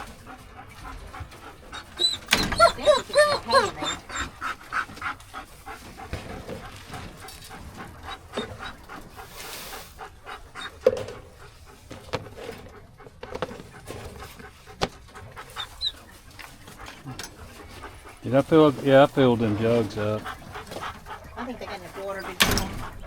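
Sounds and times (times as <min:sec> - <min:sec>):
clicks and knocks of cages: 0:00.0 - 0:04.4, 0:22.0 - 0:23.0
dog panting: 0:00.0 - 0:23.0.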